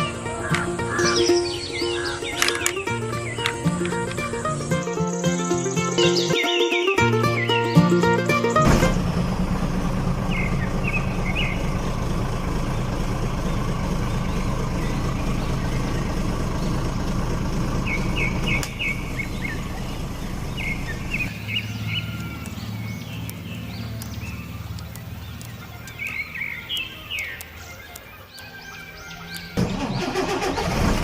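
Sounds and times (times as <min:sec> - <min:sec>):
small birds chirping: 0:00.0 - 0:08.7, 0:10.0 - 0:30.8
low rumble: 0:08.6 - 0:21.9.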